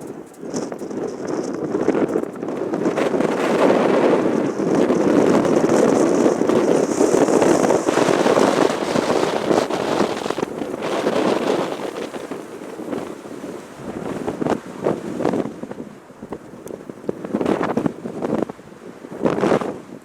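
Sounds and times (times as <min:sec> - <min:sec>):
high jet whine: 0:00.0 - 0:14.5
jet engines roaring: 0:00.0 - 0:14.5.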